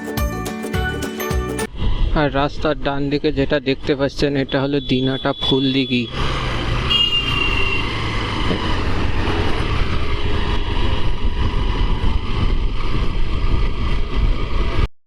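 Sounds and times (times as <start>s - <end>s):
wind rumble on microphone: 8.4s - 14.9s.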